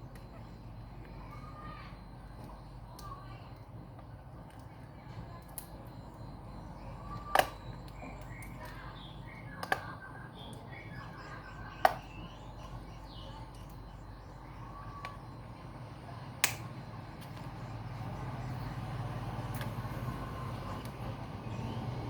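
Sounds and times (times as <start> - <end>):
faint bird chirps: 0.0 - 3.8, 4.7 - 22.0
low steady hum: 0.0 - 22.0
sharp clicks: 16.4 - 16.7.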